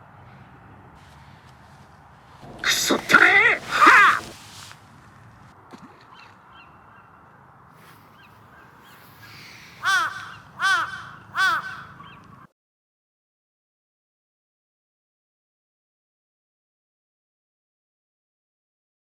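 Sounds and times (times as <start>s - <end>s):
crow cawing: 2.5s - 4.4s, 9.2s - 12.3s.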